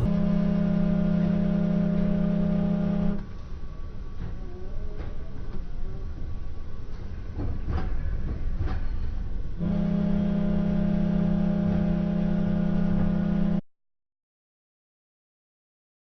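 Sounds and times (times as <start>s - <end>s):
loud low pitched tone: 0.0s - 3.3s, 9.6s - 13.6s.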